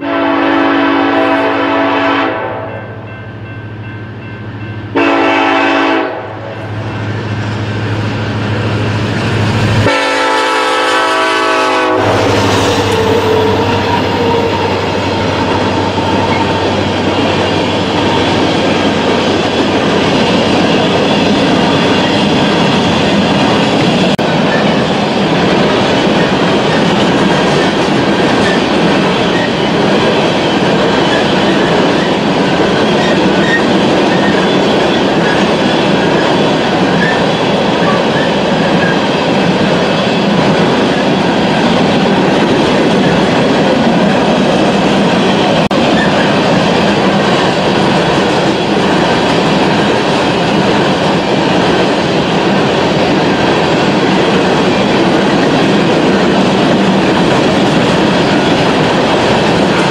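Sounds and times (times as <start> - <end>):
freight train horn: 0.0 - 3.5, 4.7 - 8.4, 9.4 - 19.8
rumble and clack of train cars: 0.0 - 59.9.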